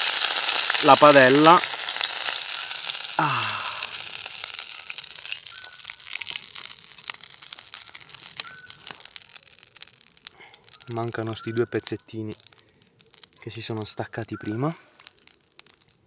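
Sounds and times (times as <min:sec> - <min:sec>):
hamburger sizzling in a pan: 0:00.0 - 0:16.0
short falling voice sound: 0:03.2 - 0:04.0.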